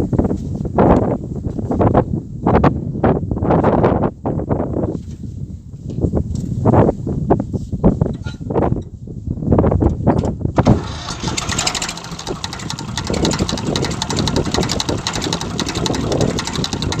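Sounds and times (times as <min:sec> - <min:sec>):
tractor diesel engine clattering: 0:10.6 - 0:17.0.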